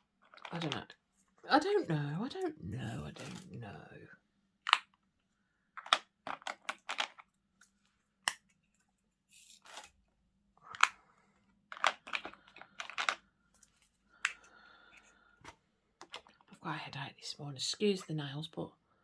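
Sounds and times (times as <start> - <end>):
plastic containers clicking: 5.8 - 7.3, 11.7 - 13.2, 14.2 - 16.5.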